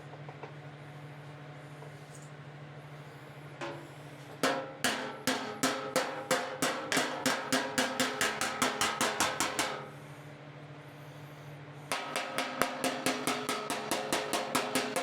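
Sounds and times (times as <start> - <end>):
hammer ringing on sheet metal: 4.4 - 9.9, 11.9 - 15.0.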